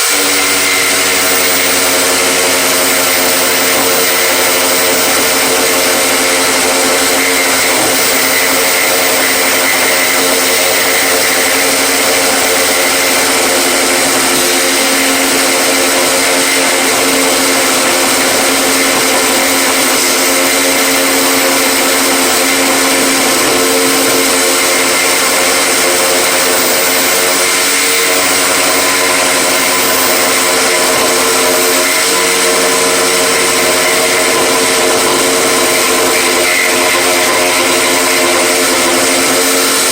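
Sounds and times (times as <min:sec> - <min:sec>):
electric motor humming: 0:00.0 - 0:39.9.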